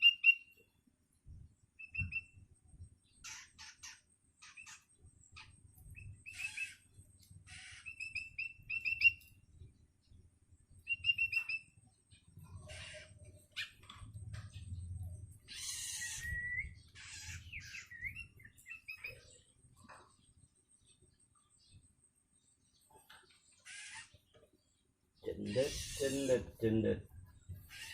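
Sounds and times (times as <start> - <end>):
young shrike begging calls: 25.3 - 26.7.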